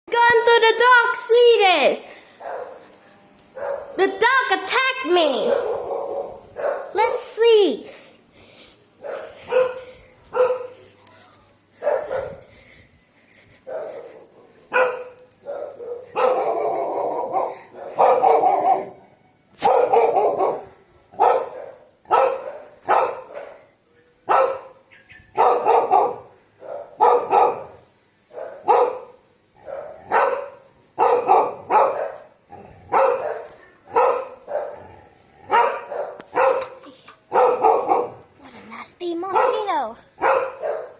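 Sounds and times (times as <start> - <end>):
dog barking: 3.6 - 4.0, 5.4 - 7.0, 9.0 - 10.8, 11.8 - 12.4, 13.7 - 19.0, 19.6 - 23.7, 24.3 - 32.3, 32.9 - 34.9, 35.5 - 38.3, 39.3 - 40.9.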